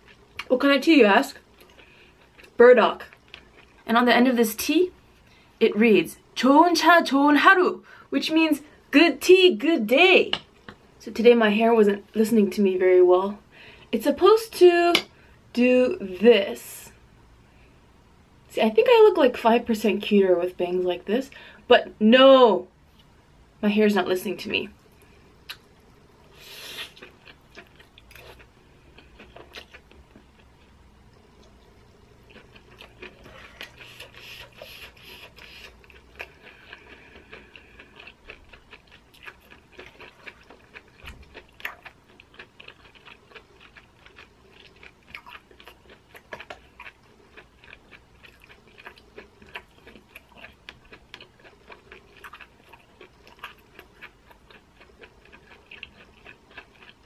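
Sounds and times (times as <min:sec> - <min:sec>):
close chewing mouth smacks: 0:32.3 - 0:57.0.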